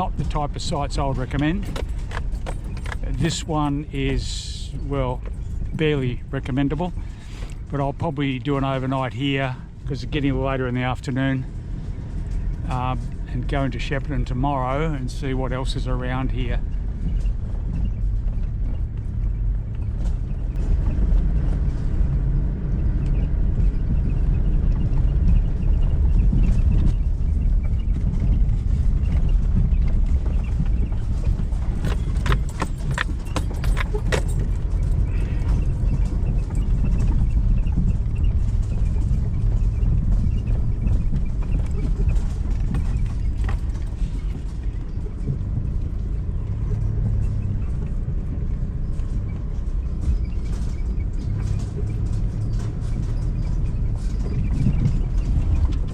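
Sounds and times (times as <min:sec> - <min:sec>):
knocks and rattles: 0:00.0 - 0:04.4, 0:16.0 - 0:55.9
vehicle driving on dirt track: 0:00.0 - 0:55.9.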